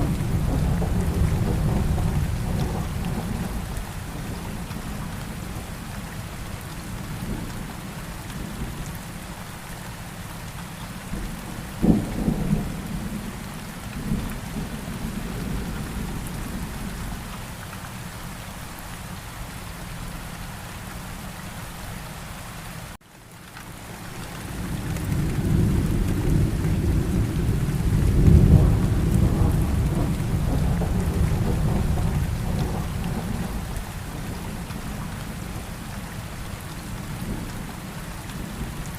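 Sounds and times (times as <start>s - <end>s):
thunder crack: 0.0s - 3.7s, 25.0s - 34.7s
thunder rolling rumble: 0.0s - 5.8s, 11.1s - 17.3s, 24.4s - 36.1s
steady rain falling: 0.0s - 38.9s.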